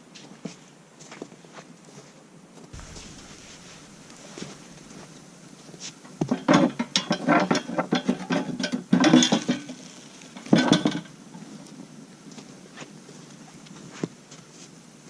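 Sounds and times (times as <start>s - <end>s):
cookware and utensils clattering: 6.2s - 11.1s.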